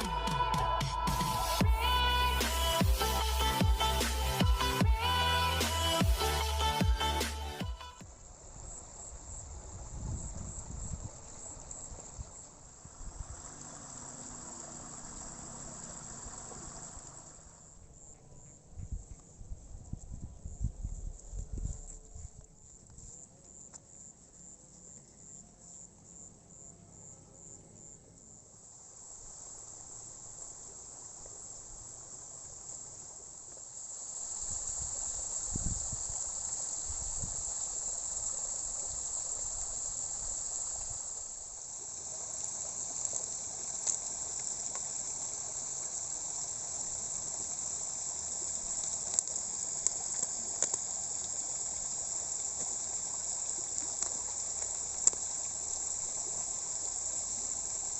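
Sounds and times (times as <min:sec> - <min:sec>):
rain hiss: 0:00.0 - 0:17.8, 0:28.5 - 0:57.9
insects chorus: 0:00.0 - 0:57.9.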